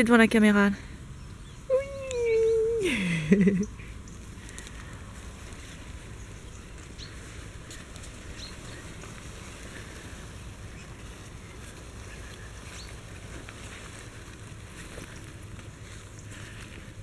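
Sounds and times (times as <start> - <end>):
puppies squeaking: 1.4 - 3.8.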